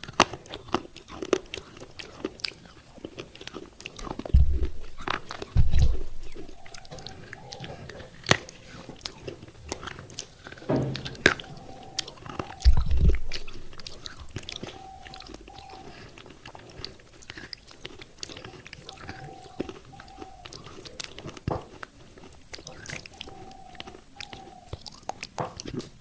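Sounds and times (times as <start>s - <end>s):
teeth crunching baked clay: 0.0s - 26.0s
heavy low thump: 4.3s - 6.8s, 10.7s - 14.4s.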